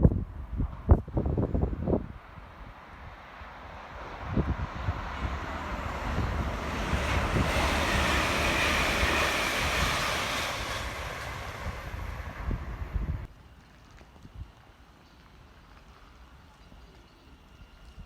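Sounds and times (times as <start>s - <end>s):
wind buffeting microphone: 0.0s - 13.3s
train passing at speed: 0.6s - 13.8s, 15.9s - 18.0s.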